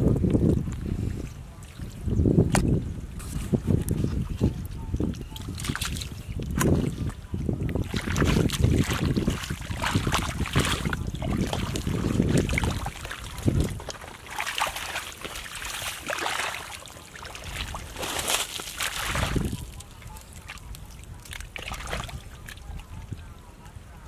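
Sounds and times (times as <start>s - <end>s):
wading through mud squelching: 5.0s - 22.7s.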